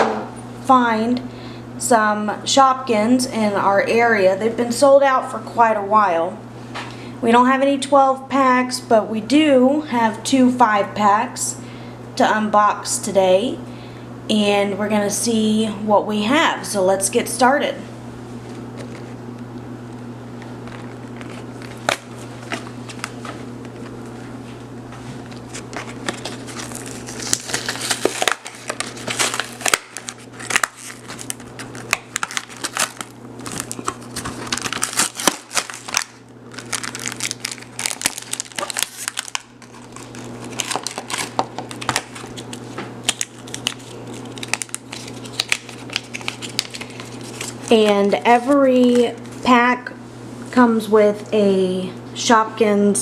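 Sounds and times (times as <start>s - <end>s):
steady low hum: 0.0s - 53.0s
plastic packaging crinkling: 20.4s - 24.2s, 25.2s - 49.4s.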